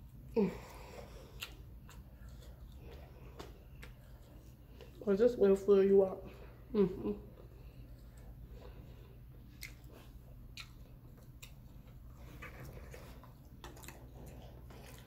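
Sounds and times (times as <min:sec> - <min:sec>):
chewing and mouth smacks: 0:01.1 - 0:05.0, 0:07.4 - 0:15.0.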